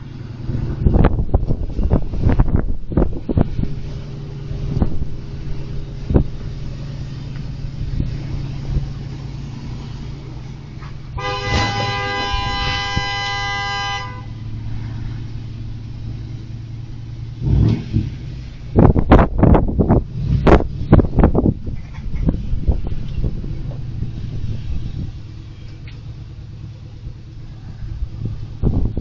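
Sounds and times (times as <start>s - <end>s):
vehicle rumble: 0.0s - 29.0s
car horn honking: 11.1s - 14.6s.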